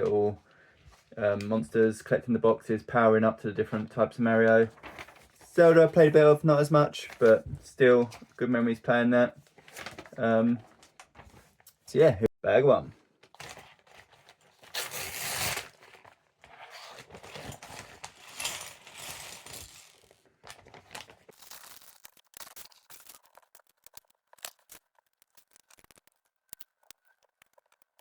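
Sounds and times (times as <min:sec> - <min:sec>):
plastic bag torn open and rustled: 0:13.2 - 0:28.0
plastic pieces clicking together: 0:21.3 - 0:28.0.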